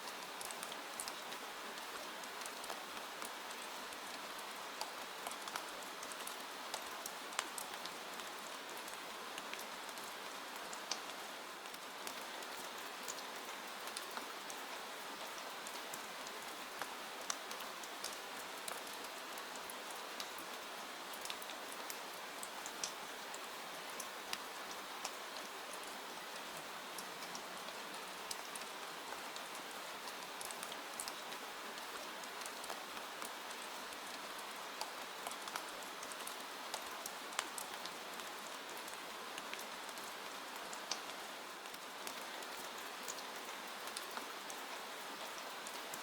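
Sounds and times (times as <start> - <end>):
rain falling: 0.0 - 46.0.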